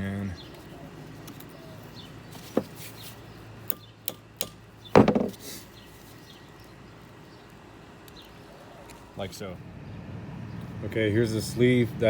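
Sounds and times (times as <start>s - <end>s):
heavy metal knock: 5.0s - 5.3s.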